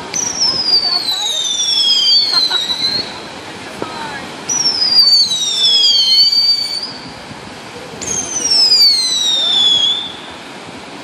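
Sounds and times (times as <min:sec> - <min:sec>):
whistling fireworks: 0:00.0 - 0:10.7.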